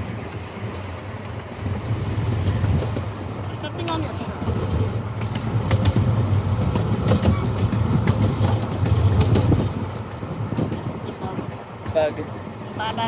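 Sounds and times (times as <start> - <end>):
miniature train rolling on track: 0.0 - 13.0
wheels clattering on rails: 0.0 - 13.0.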